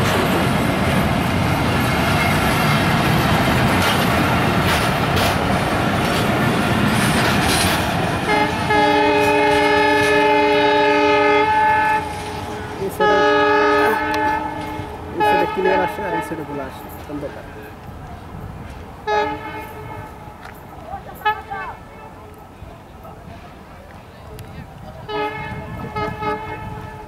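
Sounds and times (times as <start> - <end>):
train wheels clattering: 0.0 - 21.6
train horn blast: 8.2 - 17.1, 19.0 - 20.4, 21.1 - 22.0, 25.0 - 27.0.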